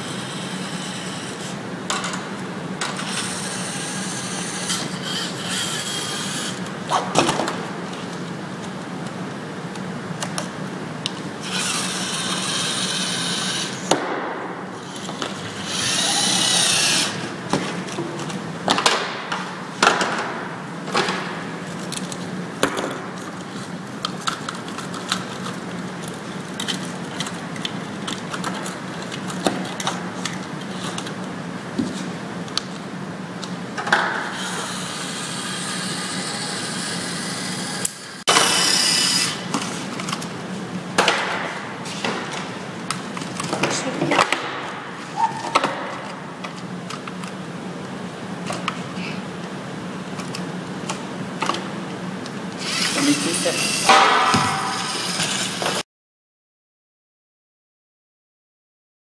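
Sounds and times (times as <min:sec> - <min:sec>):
robot motors whirring: 0:11.4 - 0:13.8, 0:15.6 - 0:17.2, 0:34.3 - 0:39.4, 0:52.6 - 0:53.9.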